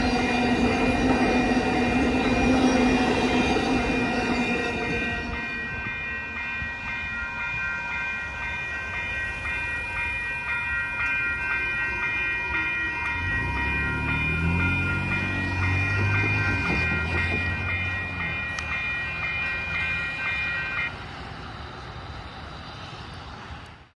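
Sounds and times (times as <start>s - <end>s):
railroad crossing bells ringing: 0.0s - 23.6s
passing train rumble: 0.0s - 23.9s.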